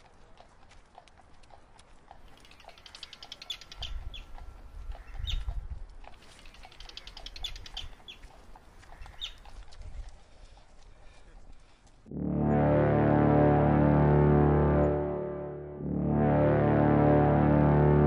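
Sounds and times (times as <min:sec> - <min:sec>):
bird rapid chattering call: 0:02.3 - 0:04.3, 0:06.4 - 0:08.2, 0:08.9 - 0:09.4.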